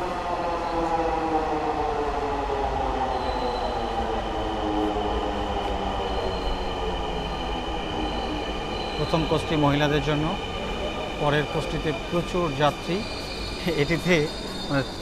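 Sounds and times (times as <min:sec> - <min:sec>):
electric train braking: 0:11.2 - 0:15.0.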